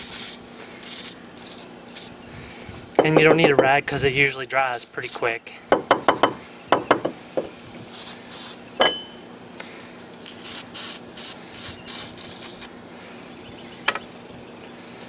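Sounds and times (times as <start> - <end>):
aerosol spray hissing: 0.0 - 5.4, 6.2 - 8.7, 10.2 - 12.8
knocks: 3.0 - 3.8, 5.7 - 7.5
sharp metal clink: 8.8 - 9.3.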